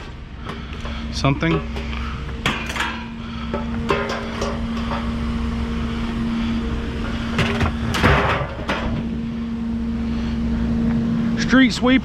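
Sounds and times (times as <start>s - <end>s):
vehicle engine idling: 0.0s - 12.0s
scrap metal clinking and clanking: 0.4s - 5.2s.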